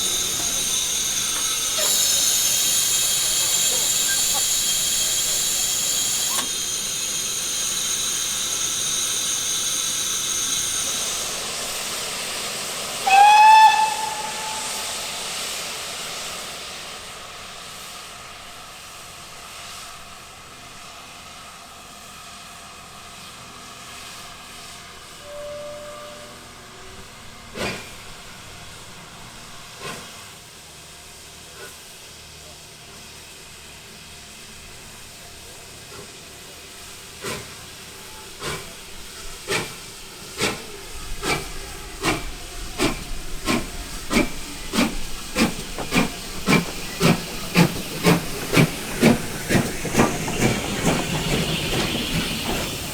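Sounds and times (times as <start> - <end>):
locomotive whistle blast: 0.0 - 11.3, 12.9 - 16.0, 25.0 - 26.8
steam locomotive hissing: 0.0 - 52.9.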